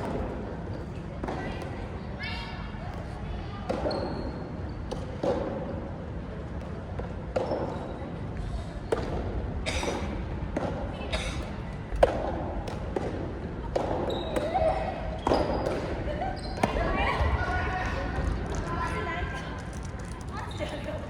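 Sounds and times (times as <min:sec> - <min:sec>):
racket hitting ball: 0:11.9 - 0:14.5.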